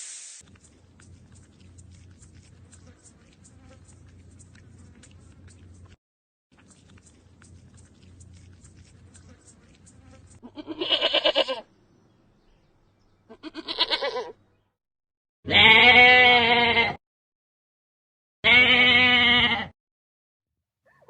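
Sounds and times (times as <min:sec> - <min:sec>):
goat bleating: 0:09.2 - 0:11.7, 0:13.3 - 0:14.4, 0:15.5 - 0:17.0, 0:18.4 - 0:19.7.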